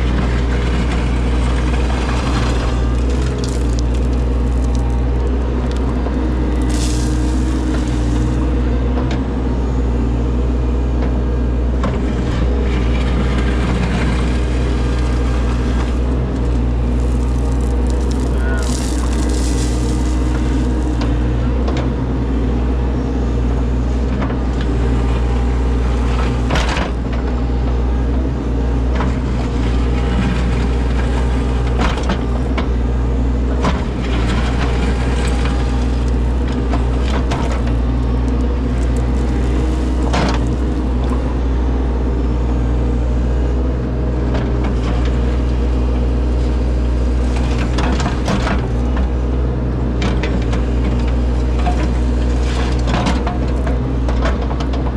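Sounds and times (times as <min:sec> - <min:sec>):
excavator engine running: 0:00.0 - 0:54.9
digging knocks and clanks: 0:00.1 - 0:08.4, 0:11.8 - 0:21.9, 0:33.6 - 0:41.4.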